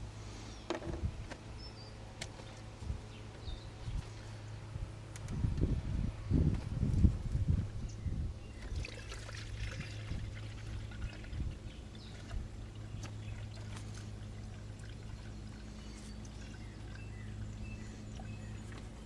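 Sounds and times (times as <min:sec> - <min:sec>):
steady low hum: 0:00.0 - 0:19.0
coolant sputtering and trickling: 0:07.4 - 0:19.0.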